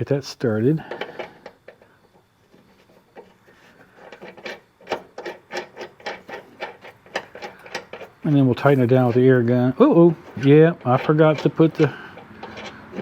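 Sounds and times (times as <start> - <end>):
nut clicking on metal threads: 4.0 - 13.0.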